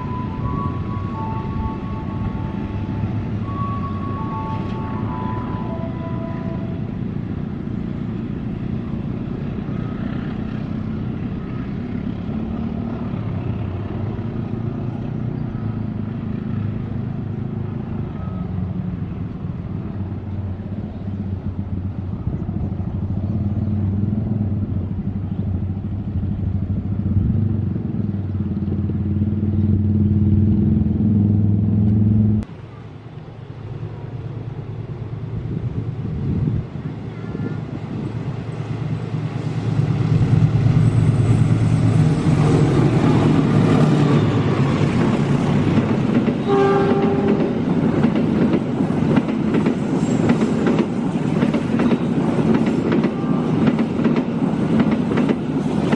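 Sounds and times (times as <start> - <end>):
multi-note train horn: 0.0 - 7.2, 46.4 - 47.6
locomotive engine drone: 0.0 - 55.9
train rumbling: 0.0 - 55.9.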